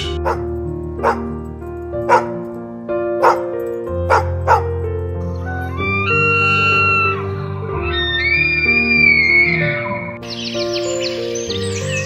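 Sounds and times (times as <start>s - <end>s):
music with sustained notes: 0.0s - 12.0s
small dog yipping: 3.2s - 3.4s, 4.1s - 4.6s.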